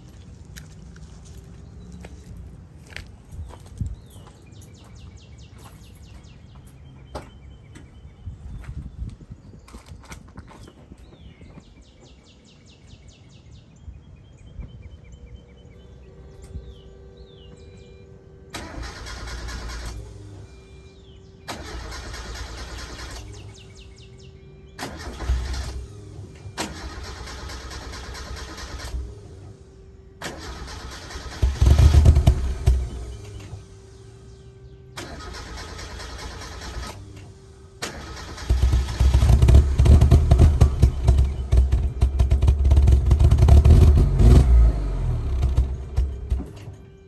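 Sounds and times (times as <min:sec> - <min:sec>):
car engine cranking: 0:18.5 - 0:24.1, 0:24.7 - 0:29.6, 0:30.2 - 0:47.0.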